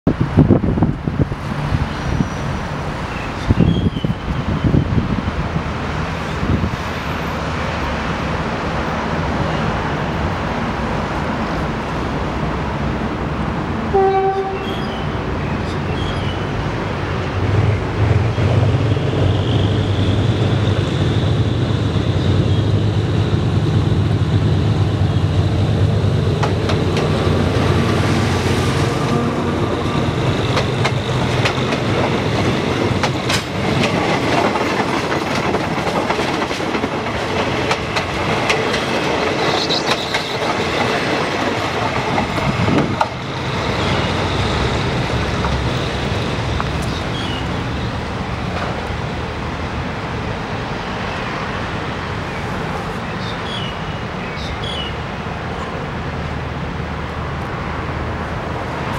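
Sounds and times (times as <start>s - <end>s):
diesel locomotive engine drone: 0.1s - 58.9s
train wheels clicking over rail joints: 26.2s - 47.2s.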